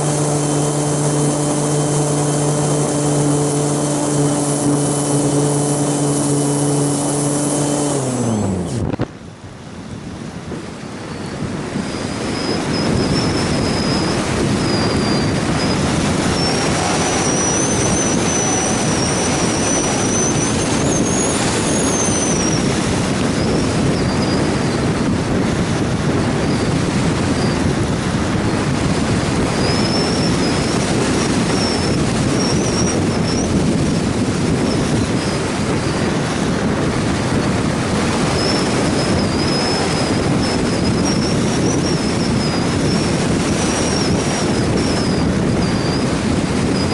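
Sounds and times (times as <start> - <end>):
strong wind on microphone: 0.0 - 46.9
thin high whine: 10.9 - 24.8.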